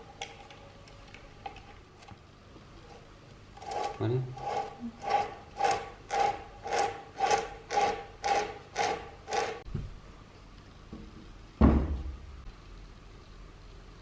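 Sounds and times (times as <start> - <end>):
rhythmic rasping strokes: 3.6 - 9.6
loud thump: 11.6 - 12.2.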